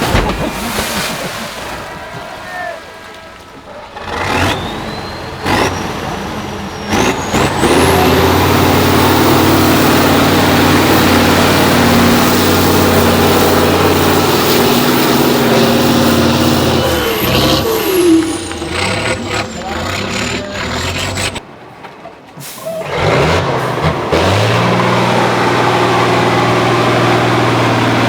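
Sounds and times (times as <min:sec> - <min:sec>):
diesel engine at high revs: 0:03.7 - 0:21.4, 0:22.4 - 0:28.0
turbo whistle rising: 0:11.0 - 0:21.4.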